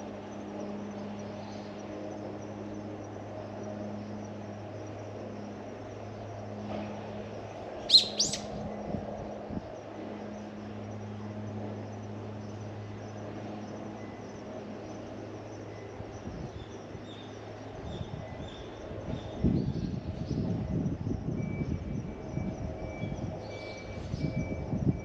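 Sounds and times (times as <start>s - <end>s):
steady low hum: 0.0s - 19.5s
bird high calls: 7.8s - 8.6s.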